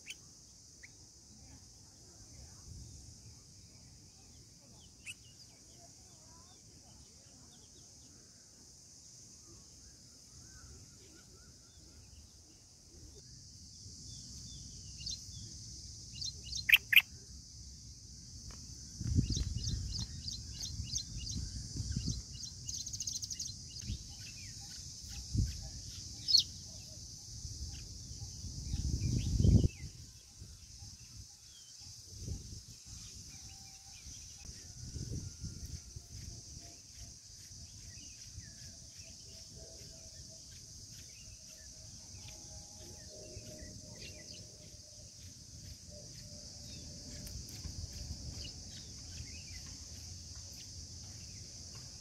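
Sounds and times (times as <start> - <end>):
steady high-pitched hiss: 0.0 - 52.0
birds chirping: 16.2 - 17.0.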